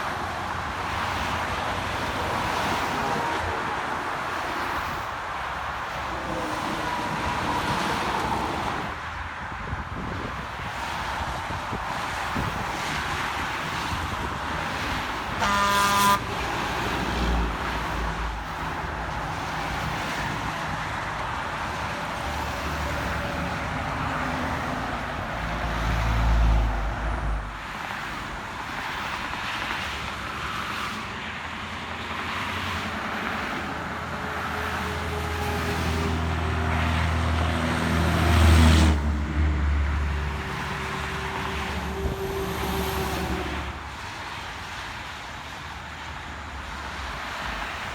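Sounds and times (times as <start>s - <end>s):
heavy vehicles rumbling past: 0.0s - 47.9s
highway traffic passing: 0.0s - 47.9s
vehicle horn toot: 15.4s - 16.4s, 40.4s - 43.8s.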